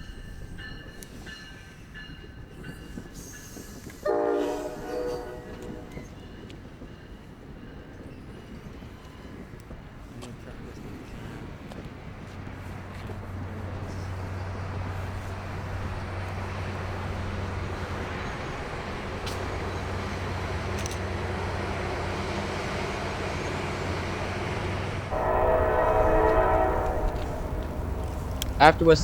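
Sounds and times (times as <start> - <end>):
train rumbling: 0.0 - 29.0
train horn: 4.0 - 6.2, 25.1 - 29.0.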